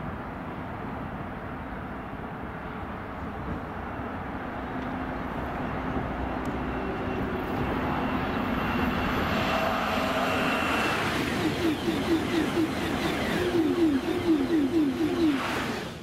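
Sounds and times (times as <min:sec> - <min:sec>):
high-speed train rushing: 0:00.0 - 0:16.0
road traffic noise: 0:00.0 - 0:16.0
high whine: 0:05.0 - 0:16.0
low hum: 0:05.0 - 0:16.0.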